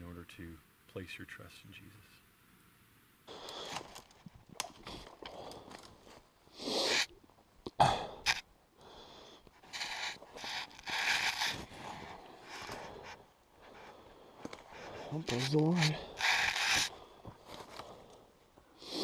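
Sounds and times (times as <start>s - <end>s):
rustling and scraping: 9.6s - 18.2s.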